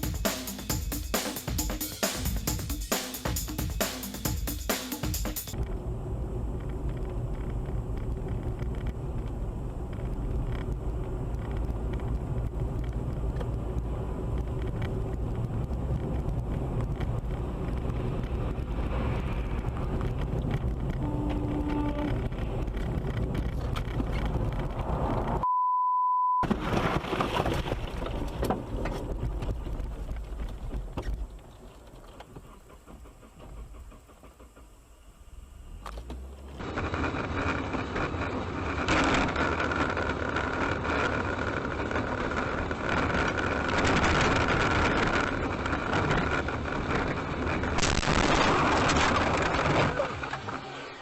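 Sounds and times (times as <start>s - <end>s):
car engine and road noise inside: 0.0s - 25.5s, 26.5s - 51.0s
steady beep tone: 25.4s - 26.4s.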